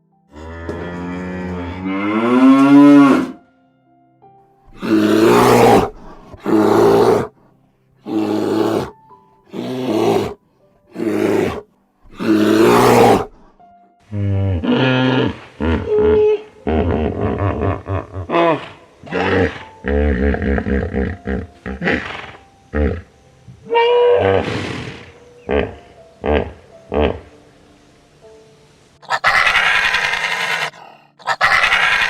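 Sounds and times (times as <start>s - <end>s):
cow mooing: 0.3s - 3.4s, 4.7s - 7.3s, 8.1s - 13.4s
hoarse animal calls: 4.7s - 7.3s, 8.0s - 13.4s, 29.0s - 32.0s.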